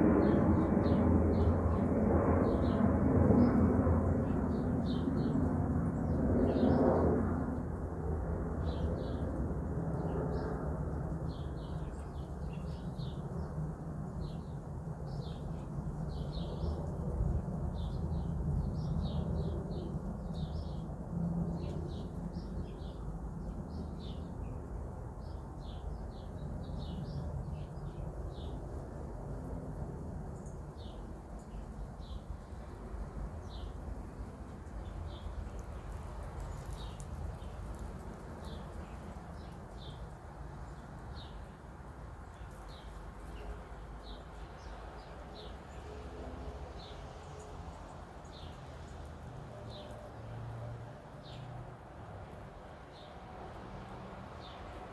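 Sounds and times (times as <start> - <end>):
small birds chirping: 4.2 - 6.9, 9.9 - 20.9, 21.5 - 29.0, 30.4 - 45.9, 46.8 - 50.4, 51.2 - 51.6.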